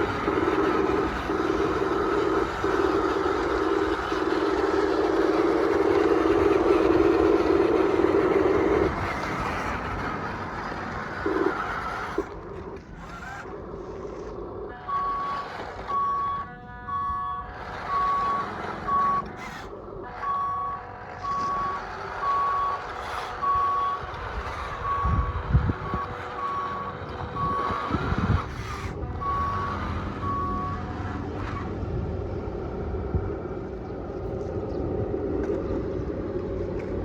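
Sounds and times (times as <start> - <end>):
low mechanical rumble: 0.0 - 37.0
reversing alarm beeping: 14.6 - 31.0.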